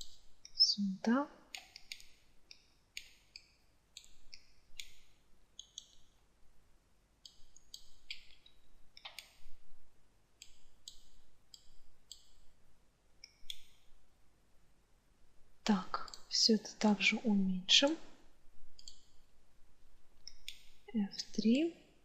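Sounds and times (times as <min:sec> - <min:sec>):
computer mouse clicks: 0:01.5 - 0:06.2, 0:07.2 - 0:09.6, 0:10.4 - 0:12.4, 0:13.2 - 0:13.9, 0:15.9 - 0:16.4, 0:18.7 - 0:19.2, 0:20.2 - 0:20.8.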